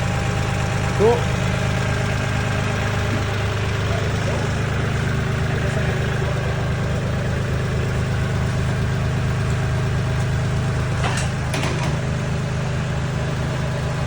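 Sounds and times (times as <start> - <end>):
tractor engine idling: 0.0 - 14.0
knocks or clanks: 11.0 - 12.1.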